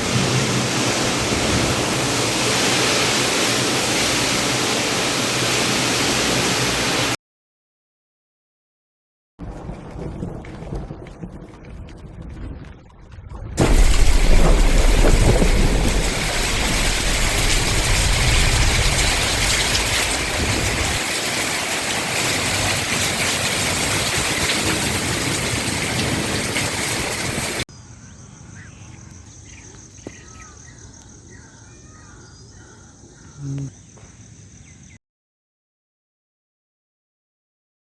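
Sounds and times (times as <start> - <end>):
heavy rain hissing: 0.0 - 7.2, 13.6 - 27.6
deep rumble: 9.4 - 21.0
low thump: 9.9 - 17.0
birds chirping: 27.7 - 35.0.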